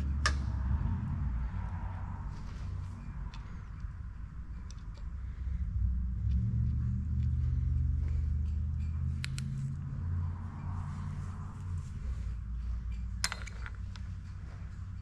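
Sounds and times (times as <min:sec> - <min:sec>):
low engine-like rumble: 0:00.0 - 0:15.0
light metallic clicks: 0:03.2 - 0:05.2, 0:08.4 - 0:09.9.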